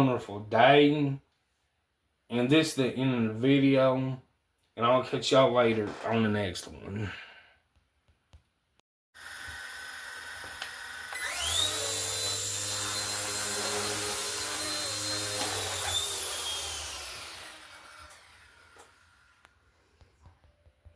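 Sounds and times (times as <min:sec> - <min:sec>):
small electric motor whining: 0:09.2 - 0:19.8.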